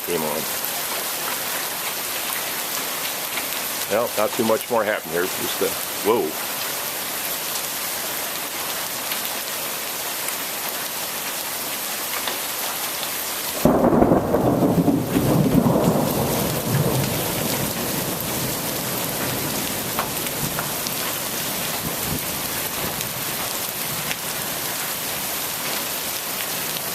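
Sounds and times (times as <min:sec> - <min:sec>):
rain hissing: 0:00.0 - 0:26.9
thunder crack and rumble: 0:13.6 - 0:20.8.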